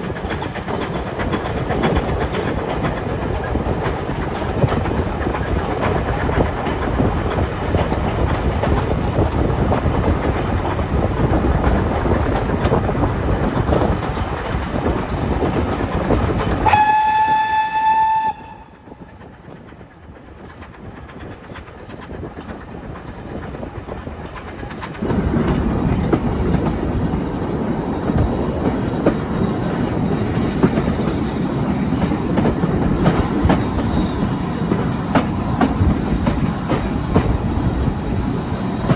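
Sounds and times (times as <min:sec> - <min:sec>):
train clickety-clack on rails: 0:00.0 - 0:38.9
steam whistle blast: 0:16.6 - 0:18.8.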